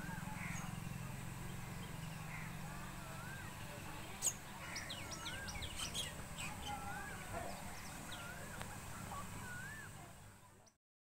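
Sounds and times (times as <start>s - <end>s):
high bird chirps: 4.2s - 8.6s
bird whistling up and down: 5.1s - 7.2s, 9.4s - 10.0s.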